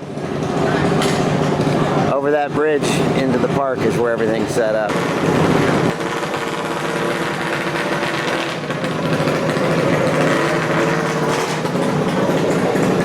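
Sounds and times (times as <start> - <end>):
minibike engine running: 4.2 - 13.0.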